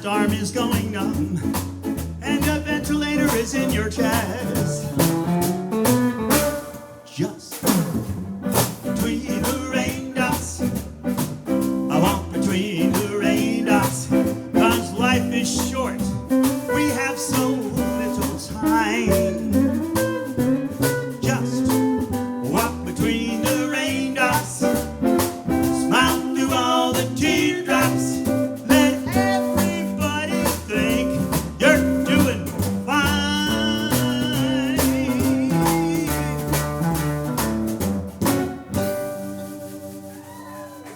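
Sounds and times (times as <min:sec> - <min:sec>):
live band playing blues: 0:00.0 - 0:40.9
melodic lead line: 0:28.1 - 0:36.9.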